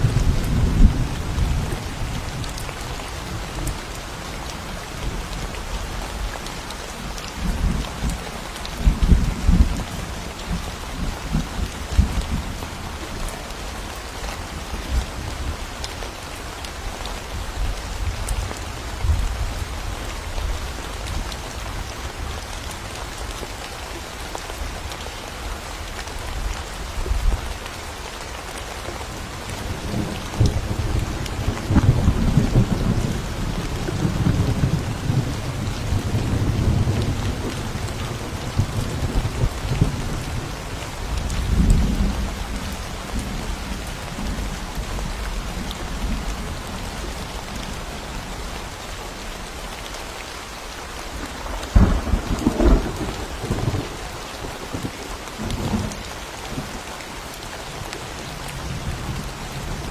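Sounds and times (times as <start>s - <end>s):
steady rain falling: 0.0s - 59.9s
rolling thunder: 29.7s - 43.5s, 51.4s - 55.9s.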